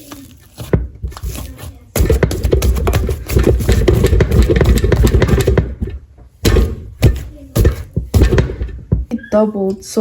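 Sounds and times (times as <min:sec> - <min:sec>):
dough thumps in bowl: 0:00.6 - 0:09.1.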